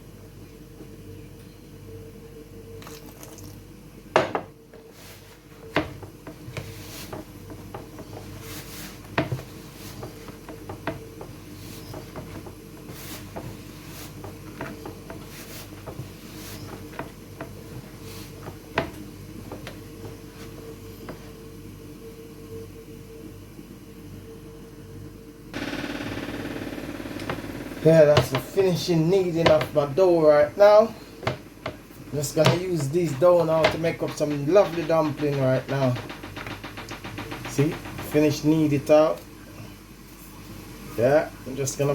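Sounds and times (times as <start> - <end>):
steady low hum: 0.0 - 41.9
dough being kneaded: 4.2 - 21.6, 27.2 - 39.2
dish knocking and clattering: 31.2 - 38.6.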